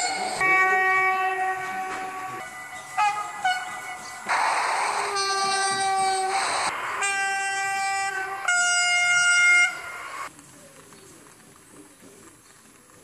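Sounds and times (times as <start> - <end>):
train horn blasts: 0.0 - 10.3
rush of air: 4.2 - 8.5.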